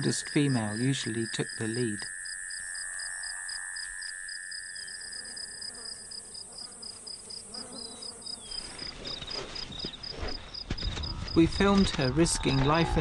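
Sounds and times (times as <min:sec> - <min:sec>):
high-pitched insect drone: 0:00.0 - 0:08.8
fast pulsing insect chirp: 0:00.0 - 0:13.0
low insect drone: 0:00.0 - 0:13.0.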